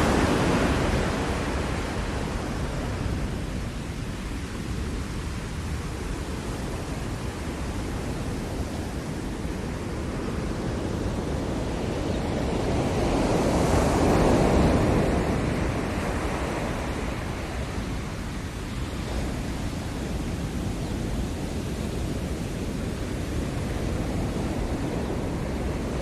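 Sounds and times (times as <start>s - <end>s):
ocean waves washing: 0.0s - 26.0s.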